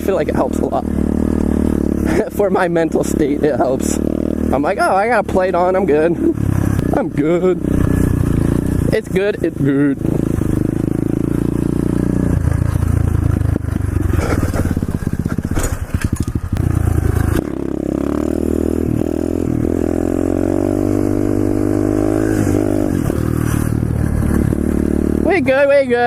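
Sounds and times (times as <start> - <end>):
pit bike engine revving: 0.0 - 26.0
wind noise: 22.3 - 25.2.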